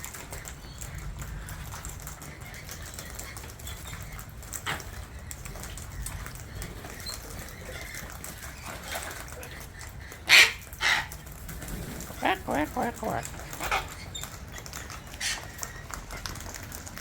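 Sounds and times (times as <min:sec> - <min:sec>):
parrots calling: 0:00.0 - 0:16.7.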